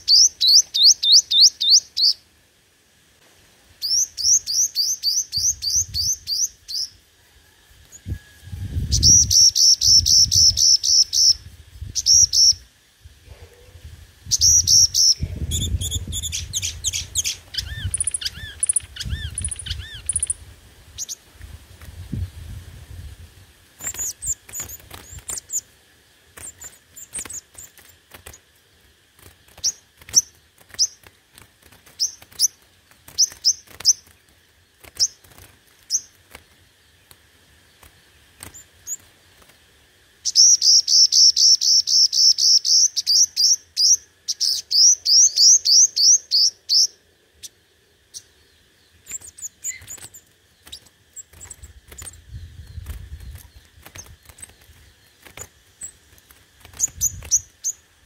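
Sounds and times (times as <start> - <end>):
fast bird trill: 0.0 - 2.2, 14.3 - 21.2
high thin bird chirps: 0.0 - 2.2, 3.8 - 7.0, 7.8 - 12.7, 13.3 - 21.3, 23.8 - 25.7, 26.4 - 28.5, 40.2 - 58.0.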